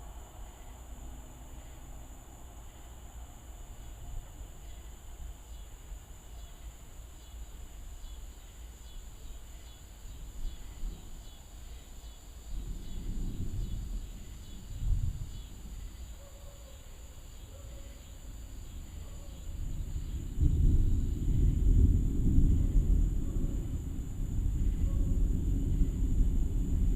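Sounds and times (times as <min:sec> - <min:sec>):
insects chirping: 0:00.0 - 0:26.9
distant thunder rumble: 0:12.4 - 0:16.2, 0:18.0 - 0:26.9.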